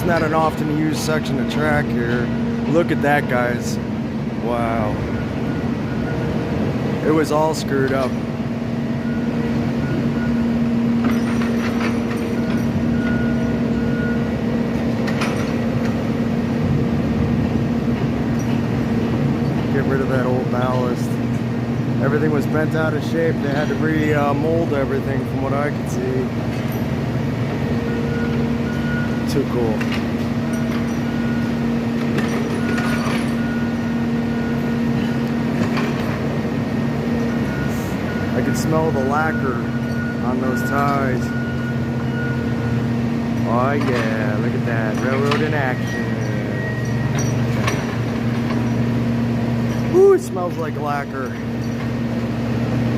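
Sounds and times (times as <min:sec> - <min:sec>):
diesel machine humming: 0:00.0 - 0:52.9
short metal clanks: 0:11.0 - 0:13.2, 0:14.9 - 0:16.0, 0:32.0 - 0:33.5, 0:43.4 - 0:48.9.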